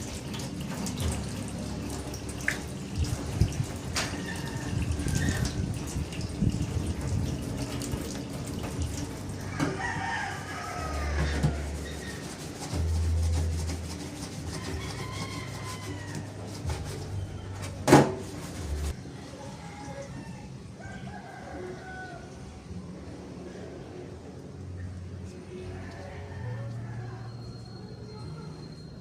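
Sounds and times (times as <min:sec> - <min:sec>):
rooster crowing: 0:04.1 - 0:05.6, 0:09.4 - 0:12.1, 0:14.6 - 0:16.6, 0:20.0 - 0:22.6, 0:25.5 - 0:27.8.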